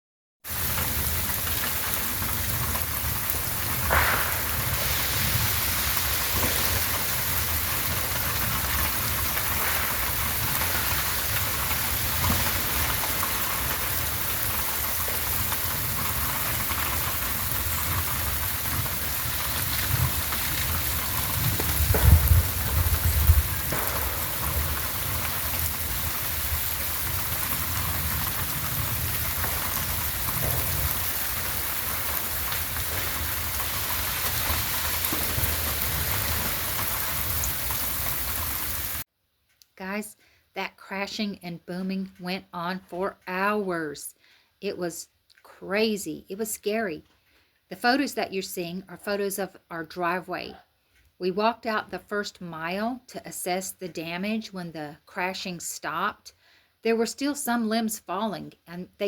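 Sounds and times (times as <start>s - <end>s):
freezing rain falling: 0.4s - 39.1s
tree limbs snapping and falling: 0.5s - 39.0s
sharp crack of ice: 1.4s - 18.0s.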